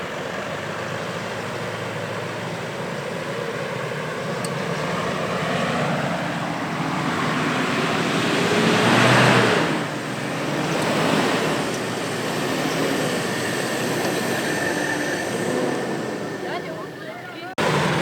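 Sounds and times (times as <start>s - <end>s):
diesel engine under load: 0.0s - 18.0s
rushing noise: 5.0s - 17.0s.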